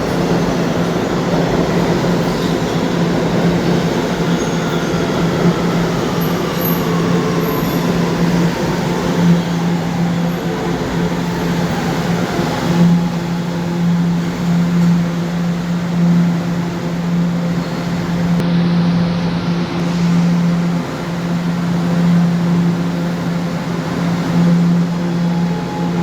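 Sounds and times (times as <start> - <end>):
subway train motors whining: 0.0 - 26.0.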